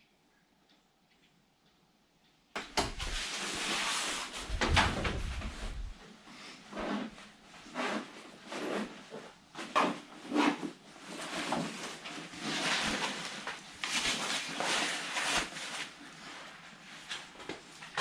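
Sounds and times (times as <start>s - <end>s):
footsteps walking: 2.8s - 3.2s, 4.4s - 6.0s
steady rushing noise: 4.4s - 6.0s.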